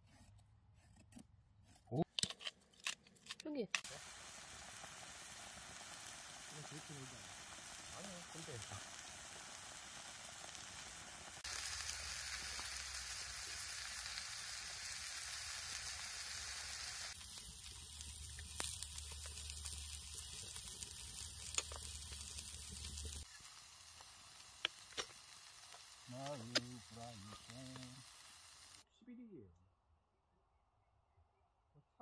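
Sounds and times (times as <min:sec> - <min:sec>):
food sizzling in a frying pan: 0:03.8 - 0:28.8.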